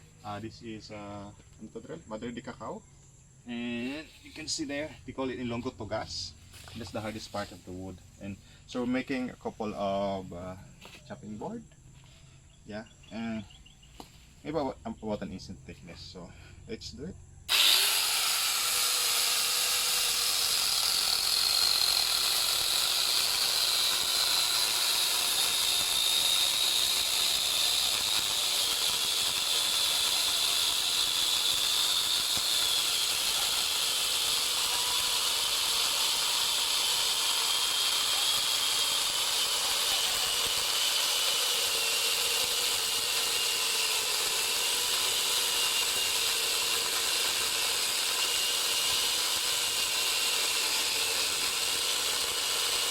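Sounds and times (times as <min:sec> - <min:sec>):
chain rasping through wood: 0:17.5 - 0:52.9
grinder motor whine: 0:17.5 - 0:52.9.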